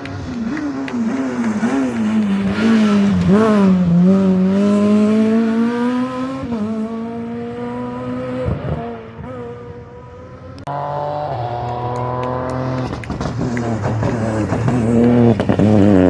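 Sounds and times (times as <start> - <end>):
engine popping: 0.0 - 4.7, 10.7 - 16.0
engine crackles and clicks: 0.0 - 5.2, 10.4 - 16.0
rally car engine revving: 0.0 - 16.0.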